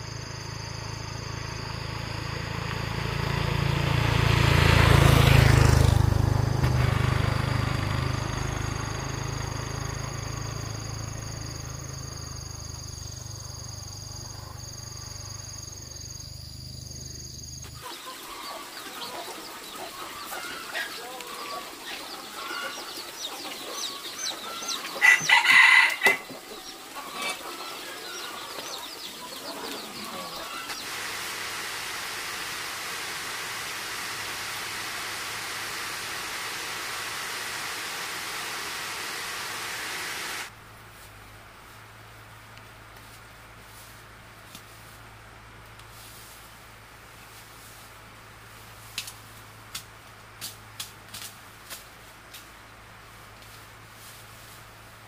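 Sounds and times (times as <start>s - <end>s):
machine hum with whining tones: 0.0s - 21.1s, 26.2s - 43.6s
steady hiss: 7.7s - 55.0s
chickens clucking: 17.6s - 31.1s
rooster crowing: 17.8s - 30.9s.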